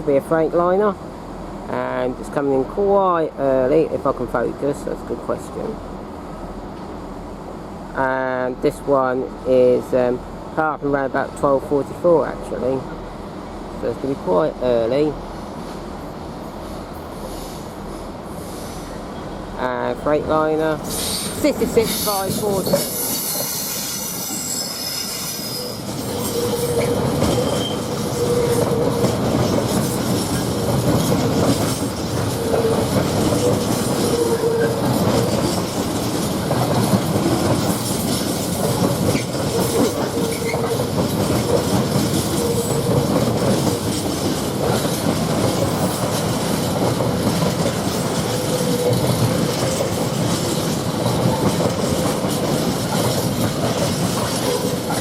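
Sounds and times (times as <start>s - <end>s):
wheel squeal: 22.6s - 28.8s, 39.2s - 40.8s
train wheels clattering over rail joints: 25.8s - 55.0s.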